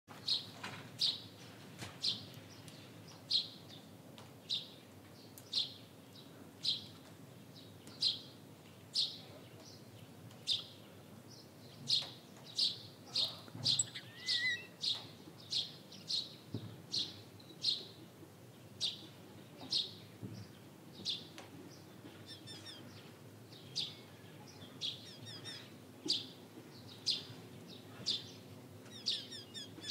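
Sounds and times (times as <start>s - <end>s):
bird chirping: 10.4s - 18.0s, 19.7s - 29.9s.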